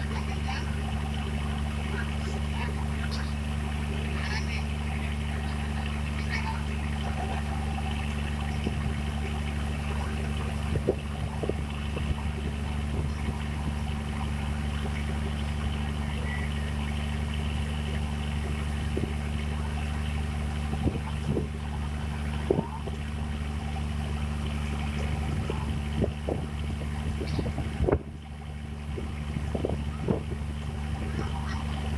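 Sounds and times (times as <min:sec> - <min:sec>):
boat engine droning: 0:00.0 - 0:31.9.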